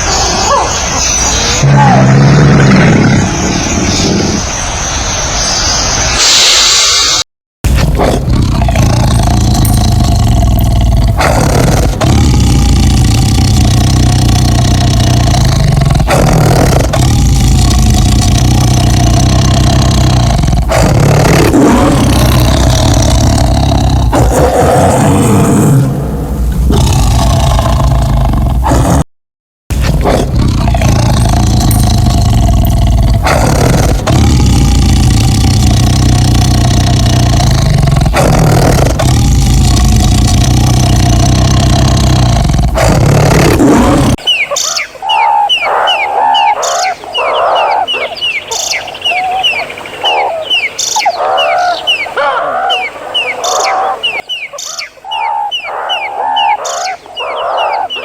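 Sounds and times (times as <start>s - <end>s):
small birds chirping: 0.0s - 7.2s, 8.2s - 29.0s, 30.3s - 58.0s
large animal deep call: 1.6s - 4.4s, 7.8s - 29.0s, 29.8s - 44.3s.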